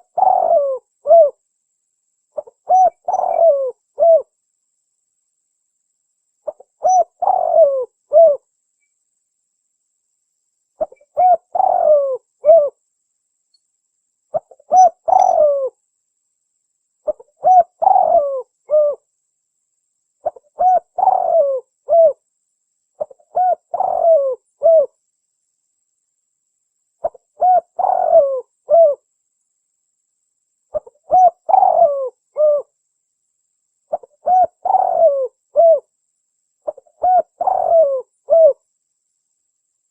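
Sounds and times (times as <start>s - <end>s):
dove cooing: 0.0s - 1.4s, 2.4s - 4.3s, 6.5s - 8.4s, 10.8s - 12.8s, 14.3s - 15.8s, 17.0s - 19.0s, 20.2s - 22.2s, 23.0s - 25.0s, 27.0s - 29.0s, 30.7s - 32.7s, 33.9s - 35.9s, 36.6s - 38.6s.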